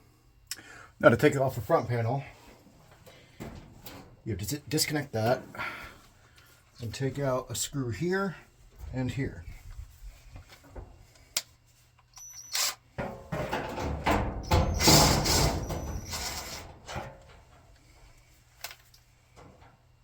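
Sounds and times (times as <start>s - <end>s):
scraping and rattling of panel: 13.0s - 17.6s.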